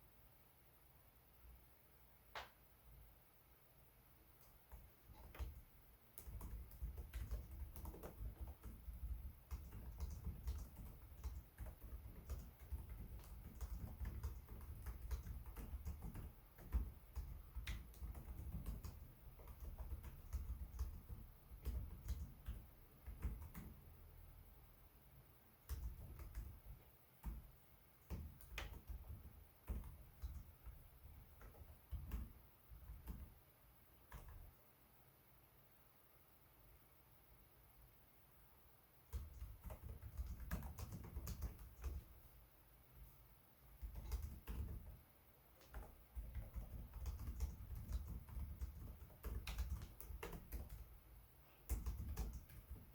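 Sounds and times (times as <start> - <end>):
laptop keyboard typing: 4.4 - 24.0, 25.6 - 33.4, 34.0 - 34.5, 39.1 - 42.2, 43.8 - 45.0, 45.6 - 52.9.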